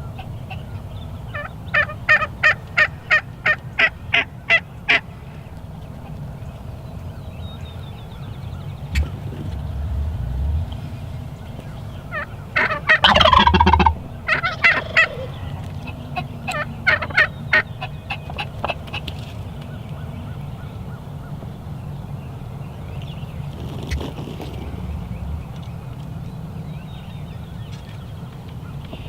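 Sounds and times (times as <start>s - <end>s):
turkey gobbling: 0.0s - 6.8s, 8.5s - 22.5s, 23.4s - 27.4s
low rumble: 5.7s - 16.8s, 22.7s - 27.6s.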